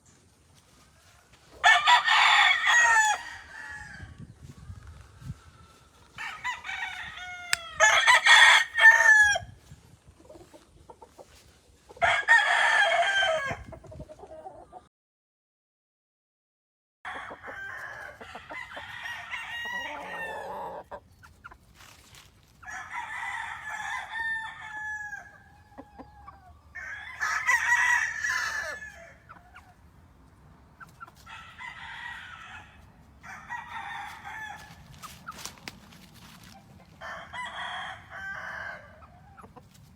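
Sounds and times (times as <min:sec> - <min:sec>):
roosters crowing: 0:00.6 - 0:09.7, 0:11.9 - 0:13.8, 0:17.1 - 0:21.0, 0:22.5 - 0:29.6, 0:31.2 - 0:39.6
chickens clucking: 0:04.1 - 0:06.2, 0:09.6 - 0:12.0, 0:13.6 - 0:14.9, 0:19.5 - 0:22.6, 0:25.3 - 0:26.9, 0:29.1 - 0:33.2, 0:33.9 - 0:37.0, 0:38.4 - 0:39.9.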